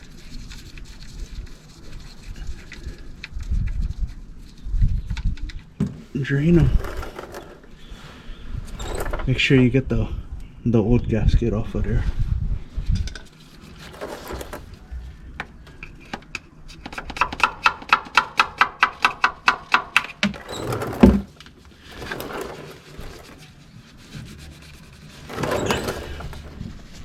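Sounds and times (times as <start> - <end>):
tool rubbing and scraping: 6.4 - 9.5, 13.4 - 14.9, 20.0 - 27.0.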